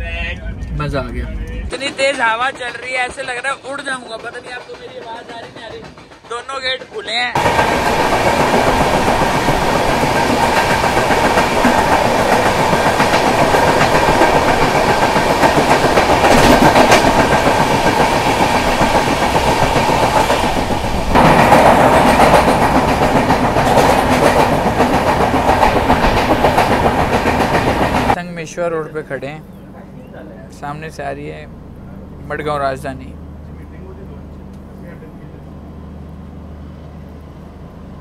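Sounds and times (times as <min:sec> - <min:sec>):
passing train alongside: 0:00.0 - 0:38.0
train wheel and rail noise: 0:00.0 - 0:38.0
clickety-clack over rail joints: 0:01.8 - 0:28.2.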